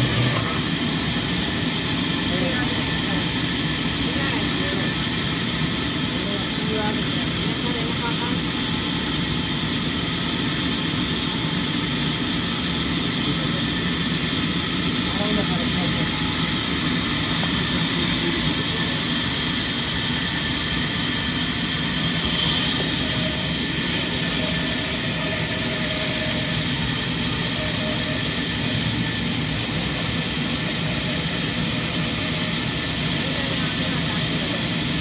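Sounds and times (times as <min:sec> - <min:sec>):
sawmill machinery running: 0:00.0 - 0:35.0.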